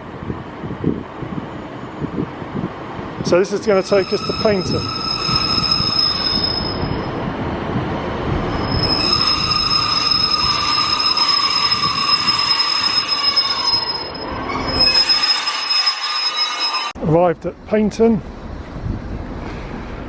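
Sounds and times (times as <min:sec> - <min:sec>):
train low rumble: 0:00.0 - 0:16.2, 0:16.8 - 0:20.0
train wheels squealing: 0:03.4 - 0:07.2, 0:08.5 - 0:17.0.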